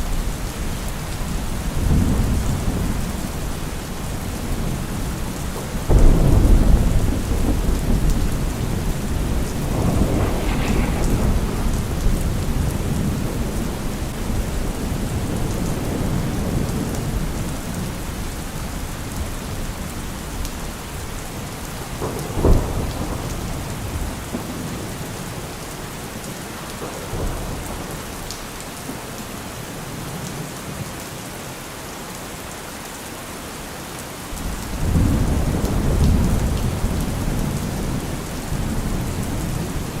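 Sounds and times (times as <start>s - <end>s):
steady rain: 0.0s - 40.0s
rolling thunder: 1.3s - 18.0s, 21.8s - 25.6s, 34.4s - 40.0s
sharp thunderclap: 5.9s - 17.2s, 22.0s - 24.8s, 34.4s - 40.0s.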